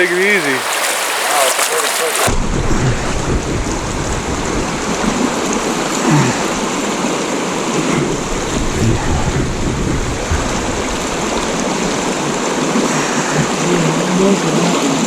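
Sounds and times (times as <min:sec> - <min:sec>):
creek water rushing: 0:00.0 - 0:15.0
heavy low rumble: 0:02.3 - 0:06.9, 0:07.8 - 0:12.3.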